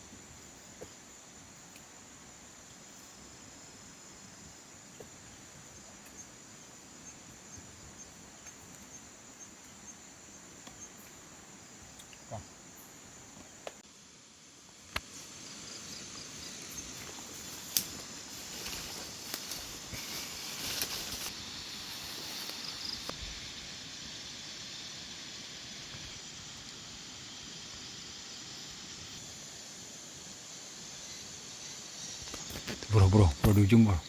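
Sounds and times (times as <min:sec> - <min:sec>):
crickets trilling: 0:00.0 - 0:34.0
insect chirps: 0:00.0 - 0:34.0
rustling noise: 0:15.0 - 0:23.2.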